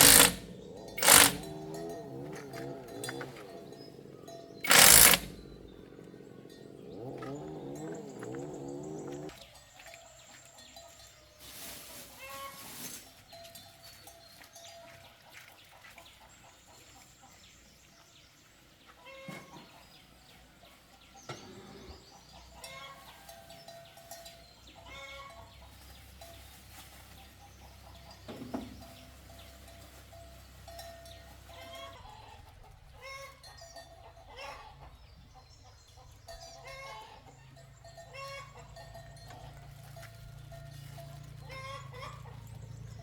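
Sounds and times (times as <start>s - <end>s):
chickens clucking: 31.5s - 33.5s, 34.1s - 35.0s, 35.7s - 37.2s, 41.4s - 42.5s.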